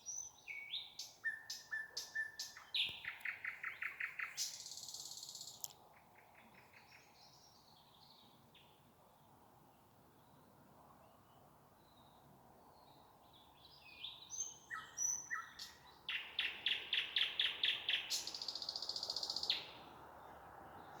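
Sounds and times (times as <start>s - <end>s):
nightingale singing: 0.0s - 8.7s, 13.4s - 20.0s.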